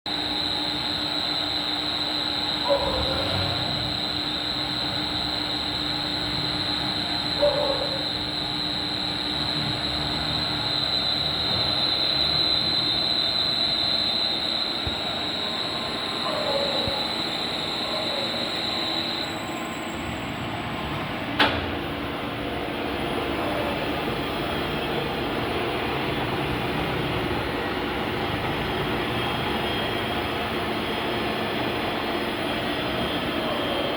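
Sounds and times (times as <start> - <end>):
high-pitched cutter squeal: 0.2 - 20.1.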